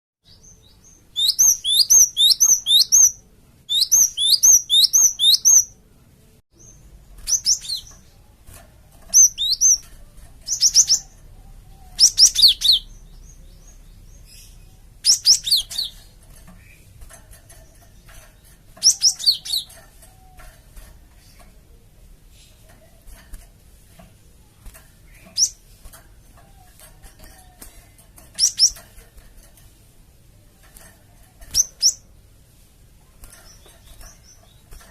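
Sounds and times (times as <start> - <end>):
faint low hum: 0.3 - 34.9.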